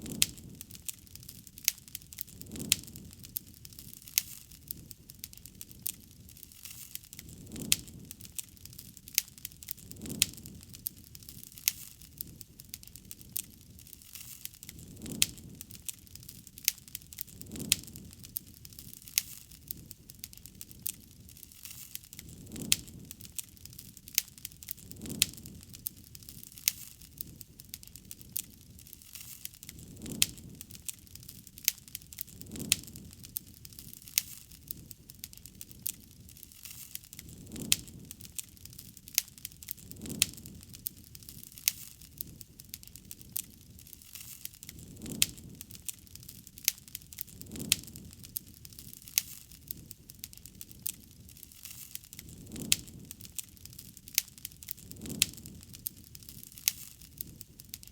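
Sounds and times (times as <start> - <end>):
campfire crackling and popping: 0.0 - 57.9.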